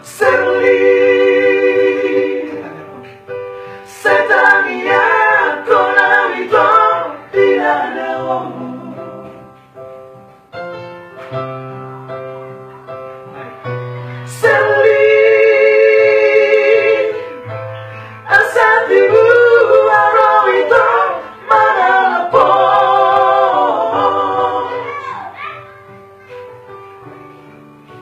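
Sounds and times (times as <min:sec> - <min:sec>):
trio singing in harmony: 0:00.0 - 0:09.6, 0:14.2 - 0:17.5, 0:18.2 - 0:25.2
musical accompaniment: 0:00.0 - 0:28.0.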